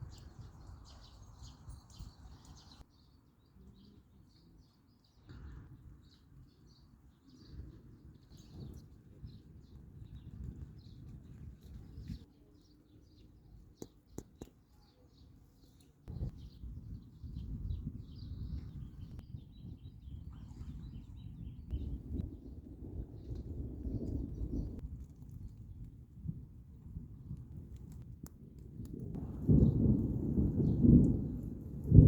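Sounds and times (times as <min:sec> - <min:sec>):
small birds chirping: 0:00.0 - 0:24.8.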